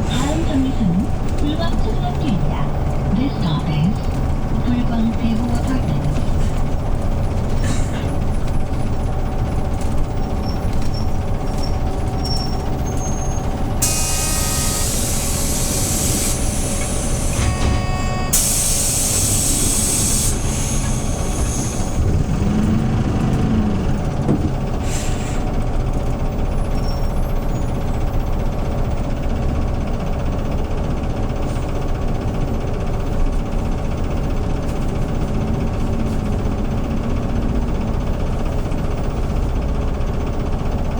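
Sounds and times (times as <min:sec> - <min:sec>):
bus engine running: 0:00.0 - 0:40.9.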